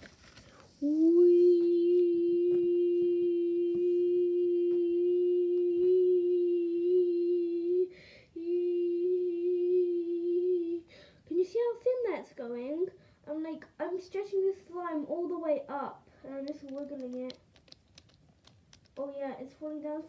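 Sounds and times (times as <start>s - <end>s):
person humming steady note: 0.8s - 10.8s
faint clicks: 16.4s - 19.0s.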